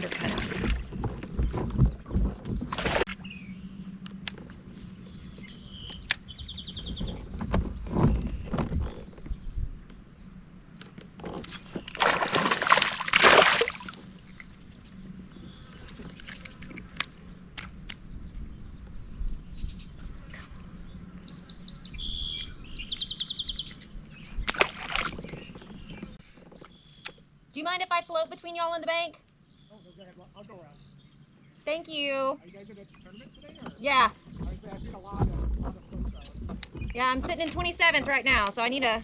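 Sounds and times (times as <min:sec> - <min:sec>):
birds trilling: 0:20.6 - 0:39.0.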